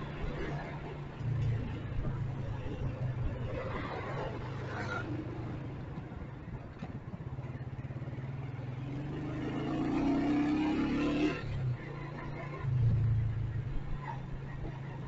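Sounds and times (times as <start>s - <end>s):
motorcycle engine revving: 7.5s - 14.8s.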